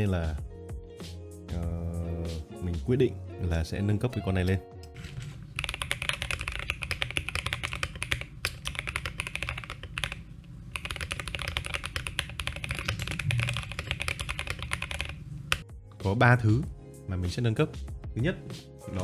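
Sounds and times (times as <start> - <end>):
fast typing on mechanical keyboard: 5.5 - 15.6.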